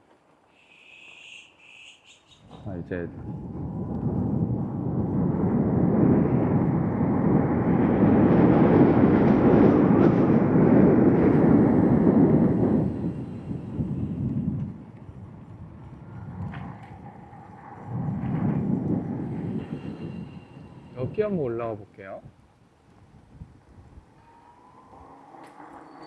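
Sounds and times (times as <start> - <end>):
wind buffeting microphone: 2.0 - 26.0.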